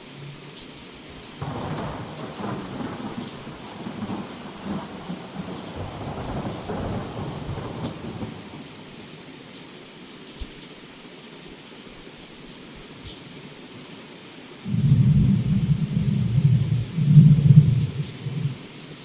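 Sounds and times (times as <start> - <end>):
heavy rain hissing: 0.0 - 19.0
rolling thunderclap: 1.4 - 9.1, 14.7 - 18.7.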